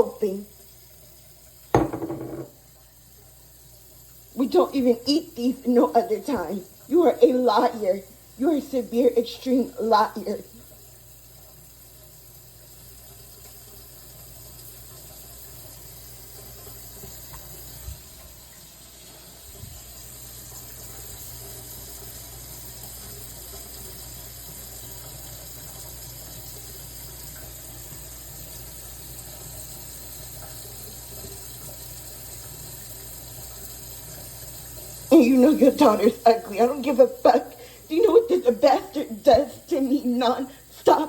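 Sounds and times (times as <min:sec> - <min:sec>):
faint knocks: 0:01.8 - 0:02.6
running water rushing: 0:33.7 - 0:41.0.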